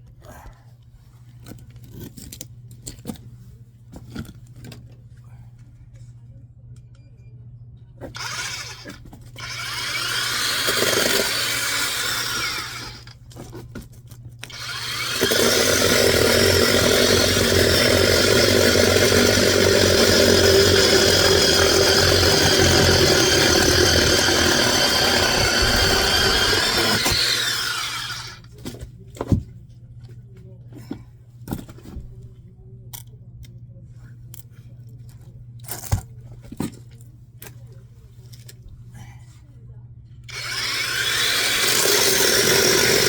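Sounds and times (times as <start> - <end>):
power tool motor running: 8.1 - 13.1, 14.5 - 28.4, 40.3 - 43.0.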